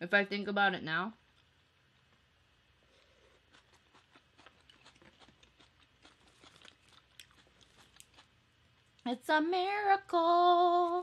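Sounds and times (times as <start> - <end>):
faint chewing with mouth clicks: 2.8 - 9.1.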